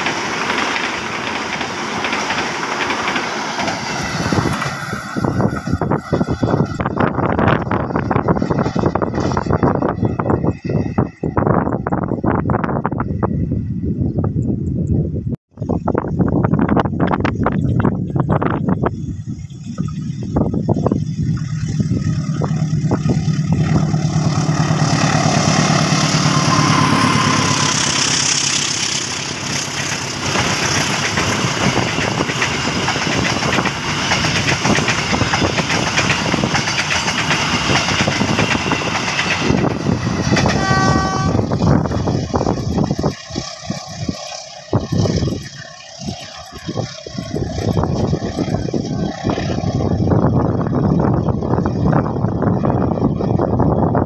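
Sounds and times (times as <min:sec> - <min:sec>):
train wheels rumbling and clattering: 0:00.0 - 0:19.0, 0:19.9 - 0:54.0.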